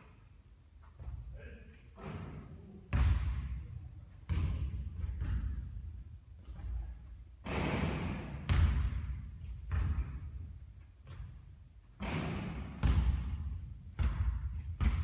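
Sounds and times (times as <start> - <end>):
basketball thudding on a court: 2.9 - 3.6, 4.3 - 5.8, 8.0 - 10.1, 12.0 - 15.0
basketball striking the hoop: 7.4 - 9.2, 12.0 - 15.0.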